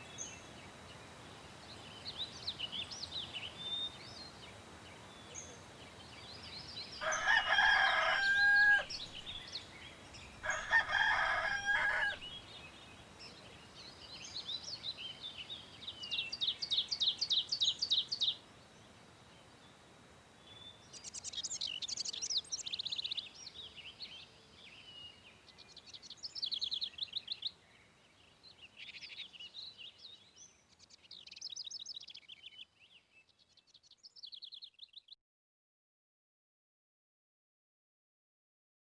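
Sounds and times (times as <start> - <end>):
songbirds trilling: 0.0 - 18.4
rooster crowing: 7.0 - 9.3, 10.4 - 12.3.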